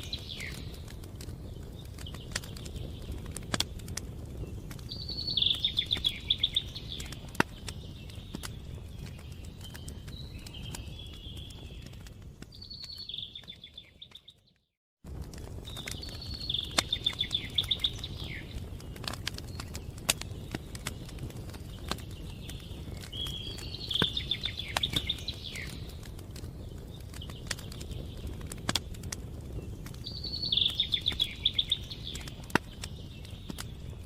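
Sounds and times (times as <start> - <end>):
wood fire crackling and popping: 0.0 - 34.0
songbird trilling: 5.0 - 7.2, 30.1 - 32.4.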